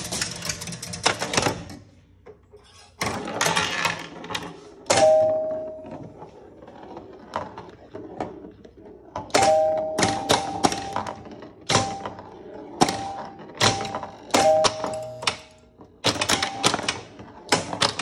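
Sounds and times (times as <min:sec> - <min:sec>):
pinball machine clicking and clattering: 0:00.0 - 0:01.8, 0:09.2 - 0:12.2, 0:12.8 - 0:18.0.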